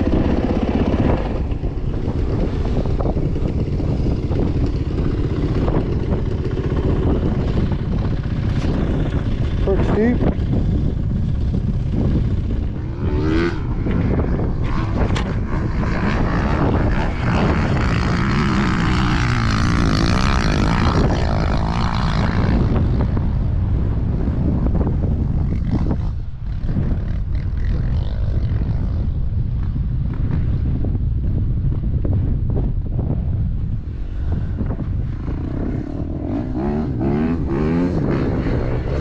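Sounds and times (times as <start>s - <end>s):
dirt bike engine revving: 0.0s - 23.2s, 35.0s - 39.0s.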